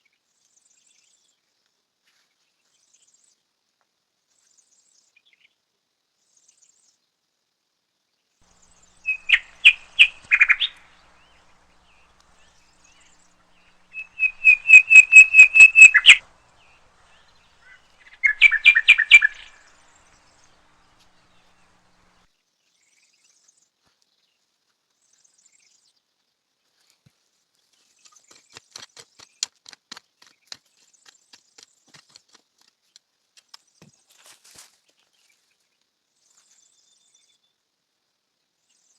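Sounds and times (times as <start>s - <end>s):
bird chirping rapidly: 8.5s - 22.2s
faint clicks: 8.5s - 22.2s.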